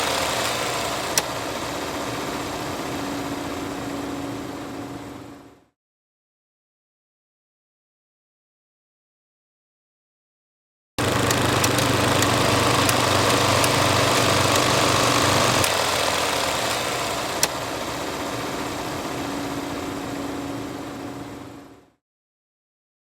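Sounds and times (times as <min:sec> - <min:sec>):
film projector whirring: 0:00.0 - 0:05.6, 0:11.0 - 0:21.9
projector clicks: 0:11.0 - 0:17.7.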